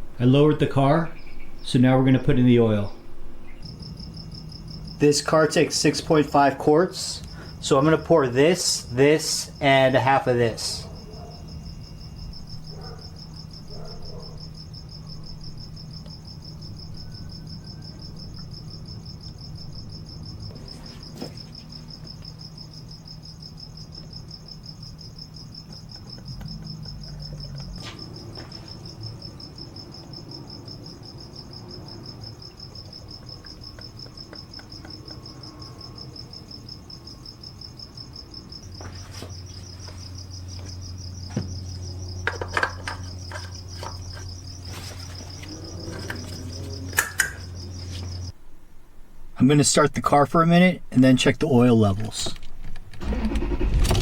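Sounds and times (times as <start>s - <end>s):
low hum: 0.0s - 6.3s, 52.8s - 54.0s
cricket trilling: 0.0s - 48.6s.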